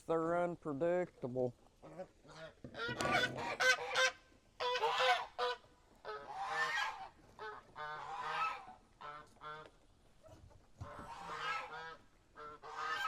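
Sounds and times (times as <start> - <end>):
geese honking: 1.8 - 9.8, 10.8 - 13.0.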